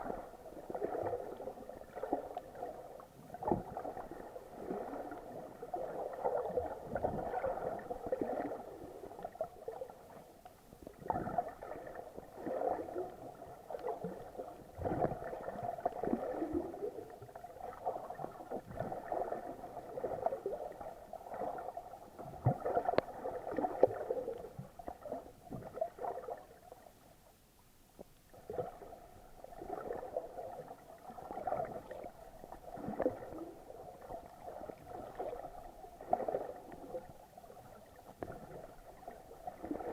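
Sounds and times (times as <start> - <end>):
muffled water sloshing: 0.0 - 39.9.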